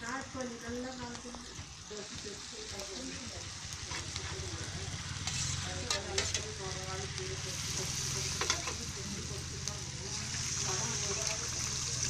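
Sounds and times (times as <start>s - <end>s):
onions sizzling in oil: 0.0s - 12.0s
metal spatula scraping pan: 5.2s - 6.6s.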